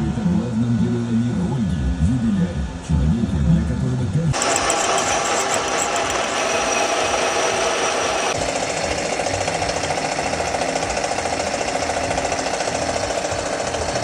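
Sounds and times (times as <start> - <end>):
motor running: 0.0 - 14.0
machine tool chattering on metal: 4.4 - 14.0.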